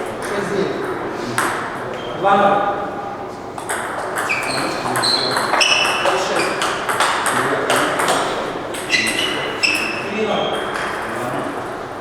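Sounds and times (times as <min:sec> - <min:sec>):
table tennis balls clicking: 0:03.6 - 0:09.9.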